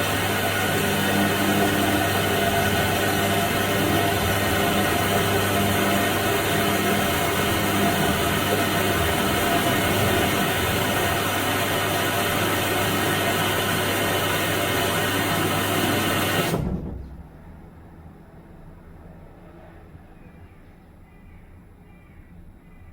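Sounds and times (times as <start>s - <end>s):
washing machine running: 0.0s - 17.7s.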